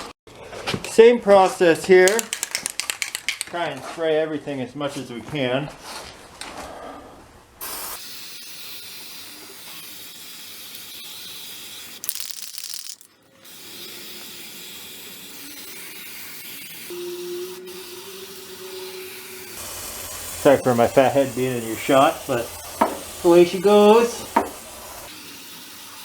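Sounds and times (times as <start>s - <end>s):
aerosol can spraying: 7.6s - 16.9s, 17.7s - 26.0s.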